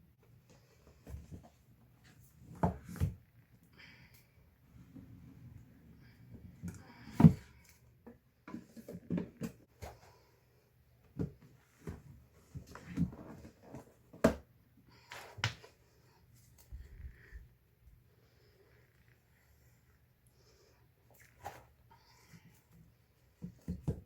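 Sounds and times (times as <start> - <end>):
hands handling books: 0.3 - 3.2, 6.4 - 10.4, 11.0 - 17.5, 21.1 - 24.0.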